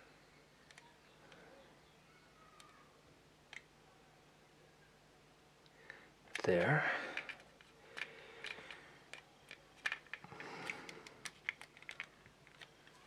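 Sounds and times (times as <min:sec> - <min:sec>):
plastic parts clicking and tapping: 0:06.3 - 0:13.0.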